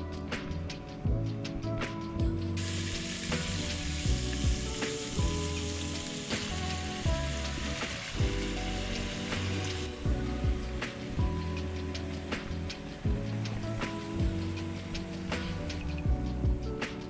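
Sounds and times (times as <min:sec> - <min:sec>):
background music: 0:00.0 - 0:17.0
food sizzling in a frying pan: 0:02.6 - 0:10.0.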